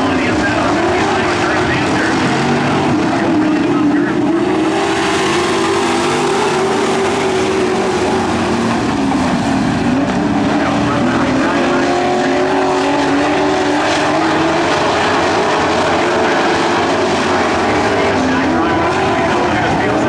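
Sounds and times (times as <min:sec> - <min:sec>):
racing truck engines: 0:00.0 - 0:20.0.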